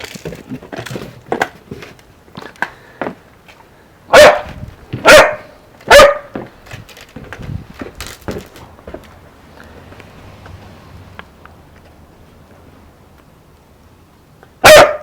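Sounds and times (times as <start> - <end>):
puppy barking: 4.1 - 6.4, 14.6 - 15.0.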